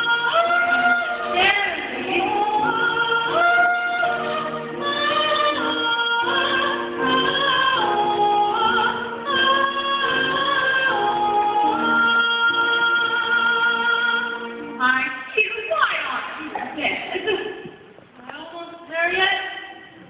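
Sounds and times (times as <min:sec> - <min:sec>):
soprano woman singing: 0:00.0 - 0:15.1.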